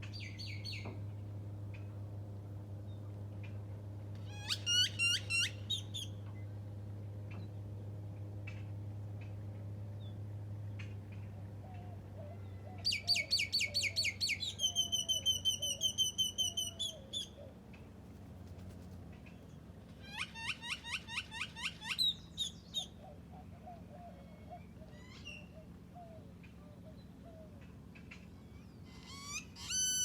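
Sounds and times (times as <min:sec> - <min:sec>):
songbird singing: 0:00.0 - 0:02.0, 0:10.0 - 0:17.8, 0:19.2 - 0:30.0
low steady hum: 0:00.0 - 0:30.0.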